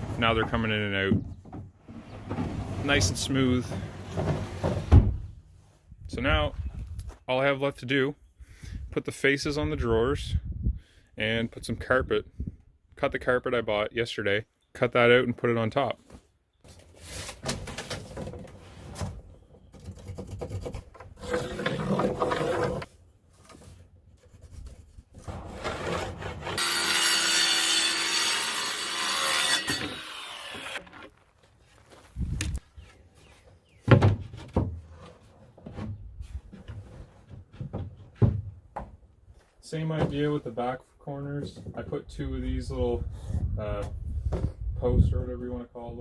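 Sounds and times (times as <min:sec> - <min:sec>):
wooden drawer scraping: 0:01.8 - 0:05.3, 0:20.0 - 0:22.9, 0:25.2 - 0:26.6.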